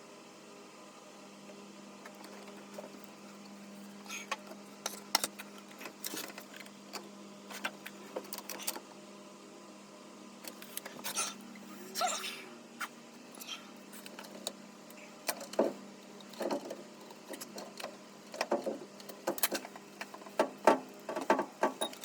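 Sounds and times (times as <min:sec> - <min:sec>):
low mechanical hum: 0:00.0 - 0:22.0
sharp clicks and knocks: 0:15.3 - 0:22.0.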